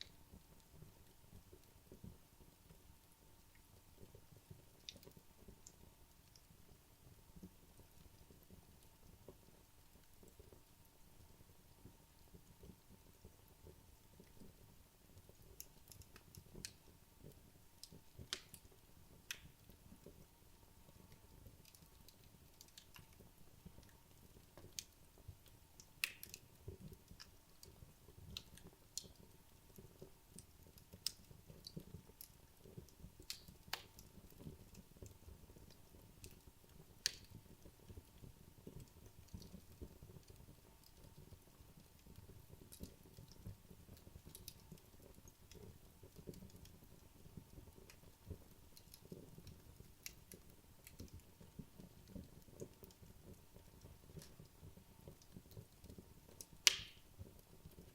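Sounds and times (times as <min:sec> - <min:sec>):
wood fire crackling and popping: 0:00.0 - 0:57.9.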